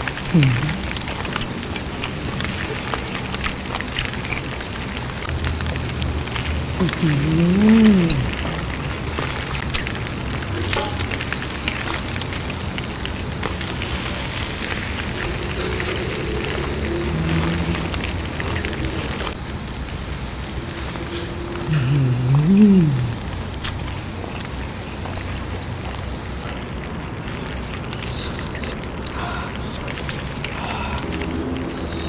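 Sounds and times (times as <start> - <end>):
wet mouth clicks: 0.0 - 5.4, 6.8 - 12.1, 15.0 - 19.4, 21.7 - 25.3, 27.3 - 32.0
chewing crunchy food: 0.0 - 19.4, 20.7 - 32.0
closed-mouth hum: 0.0 - 19.4, 20.5 - 32.0.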